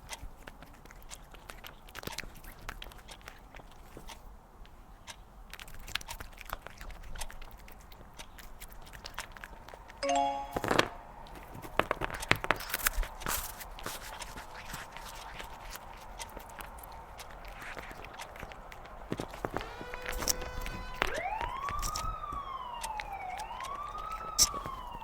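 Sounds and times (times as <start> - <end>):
cat crunching treats: 0.0 - 10.0, 12.0 - 25.0
short pitched tone: 10.0 - 11.3.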